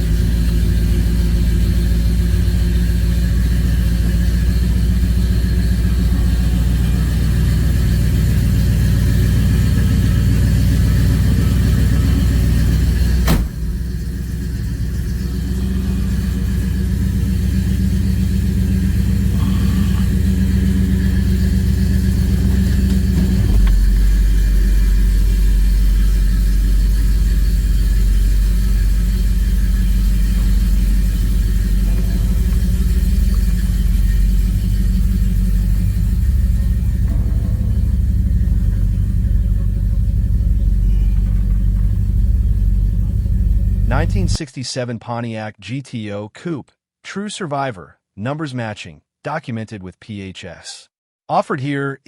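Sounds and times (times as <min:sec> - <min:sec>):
car engine low rumble: 0:00.0 - 0:44.4.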